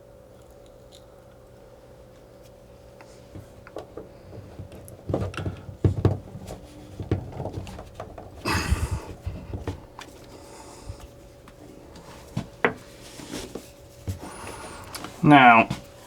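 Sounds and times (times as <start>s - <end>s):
hands knocking and clicking plastic pipe: 3.7s - 9.8s.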